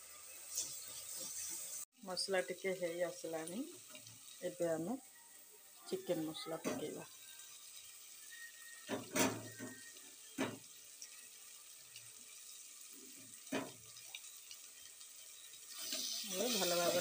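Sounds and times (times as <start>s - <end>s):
masala sizzling in oil: 0.0s - 17.0s
spatula scraping a pot: 0.4s - 1.8s.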